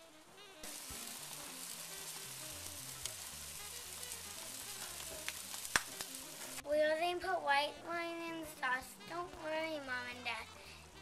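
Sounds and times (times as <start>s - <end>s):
vegetables sizzling in oil: 0.0s - 7.2s
soft background music: 0.0s - 11.0s.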